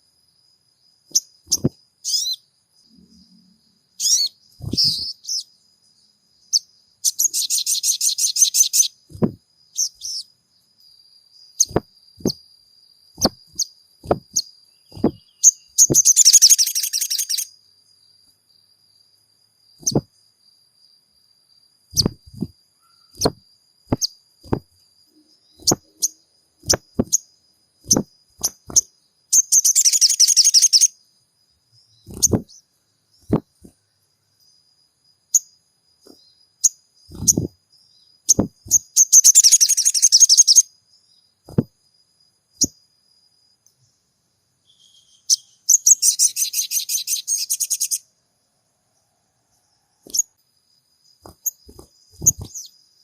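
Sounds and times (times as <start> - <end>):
bird chirps: 1.1 - 18.2, 19.7 - 20.2, 21.9 - 31.0, 31.8 - 33.8, 35.3 - 41.7, 42.6 - 42.8, 44.6 - 48.1, 49.6 - 50.4, 51.0 - 52.9
bird rattling trill: 4.0 - 5.4, 13.2 - 17.5, 21.9 - 24.7, 25.5 - 30.9, 32.1 - 32.6, 36.1 - 37.6, 38.3 - 40.6, 51.2 - 52.7.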